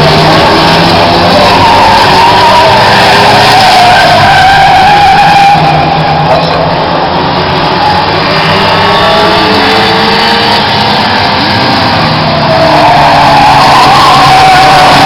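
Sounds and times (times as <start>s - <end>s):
tyres squealing: 0.0s - 6.7s, 12.2s - 15.0s
race car engines: 0.0s - 15.0s.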